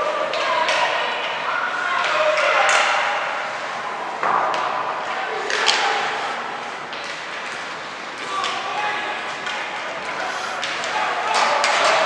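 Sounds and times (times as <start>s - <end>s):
voices calling and chattering: 9.6s - 12.0s.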